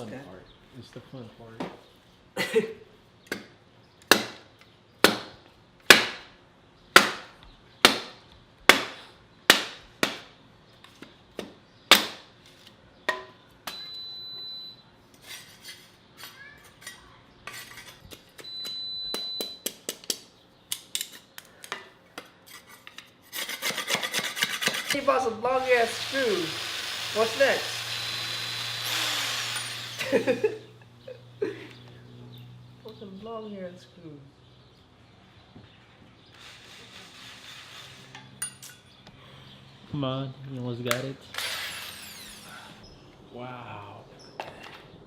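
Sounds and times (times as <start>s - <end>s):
hammer striking wood: 4.1s - 4.4s, 5.0s - 5.3s, 5.9s - 6.3s, 7.0s - 10.3s
short machine whirs: 25.7s - 30.4s, 36.3s - 38.3s.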